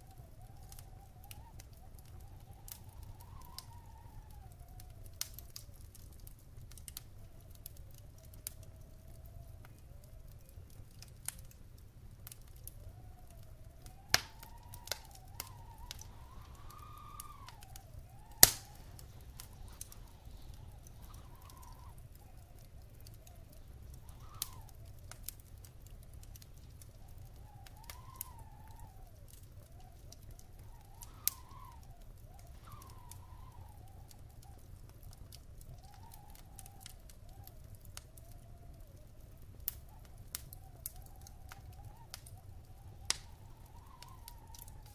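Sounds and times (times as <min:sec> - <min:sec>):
faint wavering whistle: 0:00.0 - 0:05.5, 0:12.7 - 0:25.0, 0:26.6 - 0:34.7, 0:35.7 - 0:44.9
low rumble of fire: 0:00.0 - 0:44.9
wood fire crackling: 0:00.0 - 0:44.9.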